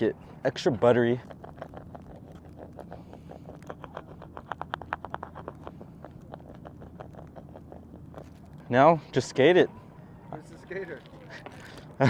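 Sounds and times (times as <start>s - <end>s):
wax scraping on concrete: 0.8s - 9.4s.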